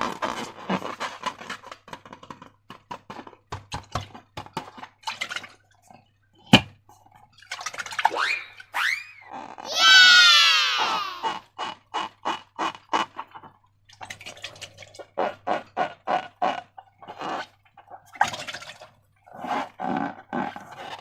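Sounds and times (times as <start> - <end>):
balloon squeaks: 8.2 - 11.4.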